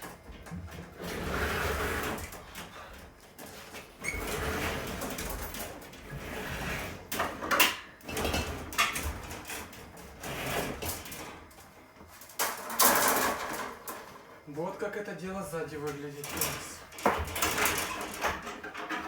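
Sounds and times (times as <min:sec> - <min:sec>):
scraping rustles: 0:08.1 - 0:14.7.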